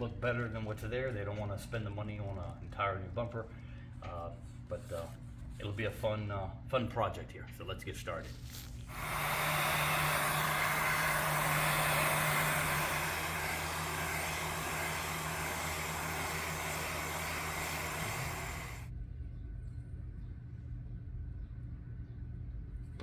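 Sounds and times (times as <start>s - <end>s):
heat gun blowing hot air: 8.8s - 18.9s.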